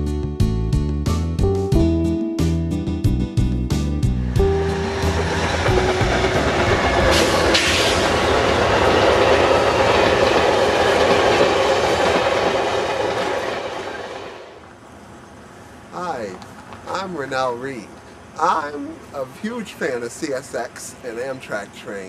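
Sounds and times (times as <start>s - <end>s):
train wheels rumbling and clattering: 4.4s - 14.8s.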